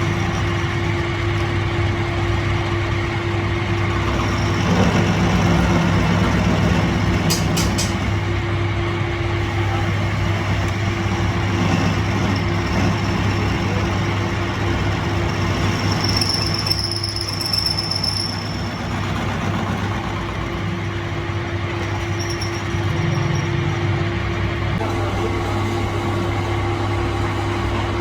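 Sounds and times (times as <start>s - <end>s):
machine humming: 0.0s - 28.0s
high-pitched squeal: 11.9s - 21.0s.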